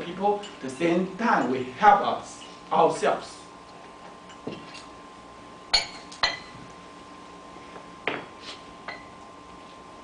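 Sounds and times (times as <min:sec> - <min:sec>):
tableware clinking: 0:05.7 - 0:06.6, 0:08.9 - 0:09.2.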